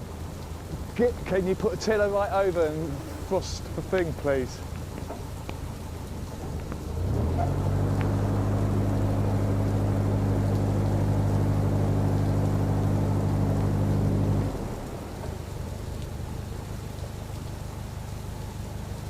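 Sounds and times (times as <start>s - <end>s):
rain falling: 0.0s - 19.0s
bow thruster humming: 2.8s - 16.8s.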